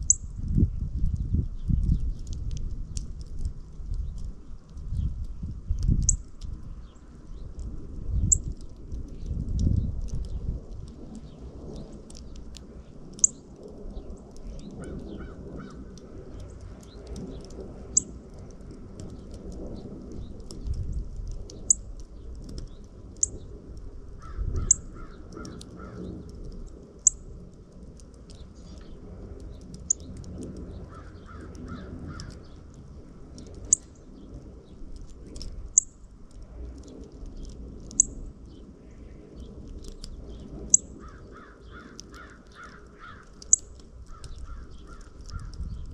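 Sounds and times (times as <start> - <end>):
low wind rumble: 0.0 - 45.9
harsh rapid bird calls: 24.2 - 26.1, 40.2 - 45.9
birds chirping: 24.2 - 26.4, 28.2 - 35.0, 36.8 - 45.9.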